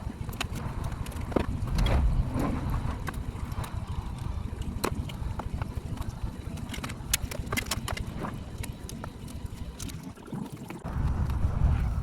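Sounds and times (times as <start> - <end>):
low rumble: 0.0 - 7.2, 10.8 - 12.0.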